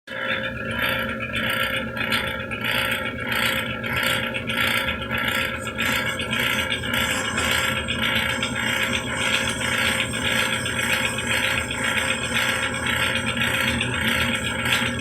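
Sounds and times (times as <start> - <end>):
metal lathe gears clattering: 3.9 - 15.0.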